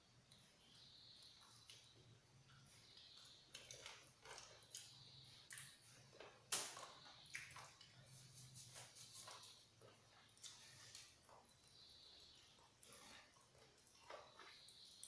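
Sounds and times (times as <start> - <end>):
chewing and mouth noises: 1.2 - 15.0.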